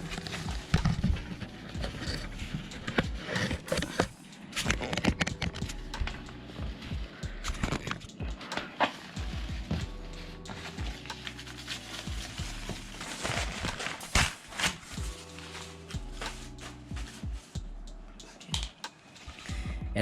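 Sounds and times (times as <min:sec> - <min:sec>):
hands handling computer parts: 0:00.0 - 0:06.3, 0:10.5 - 0:17.3.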